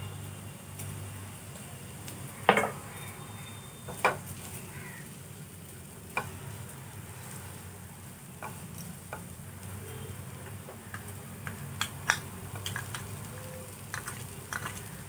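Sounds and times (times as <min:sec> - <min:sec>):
vegetables sizzling in a frying pan: 0:00.0 - 0:15.0
spatula stirring: 0:10.8 - 0:15.0.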